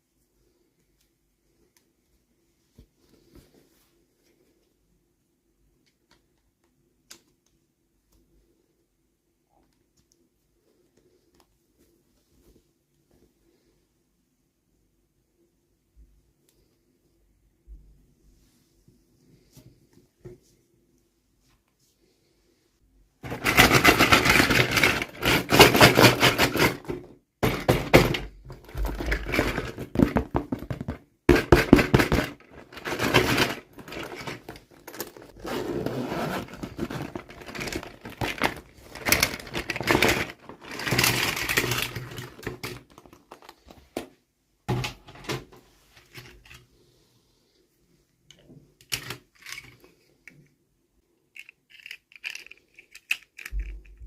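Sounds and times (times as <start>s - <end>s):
toy packaging tearing and crinkling: 23.3s - 26.8s, 36.4s - 43.6s, 51.4s - 54.0s.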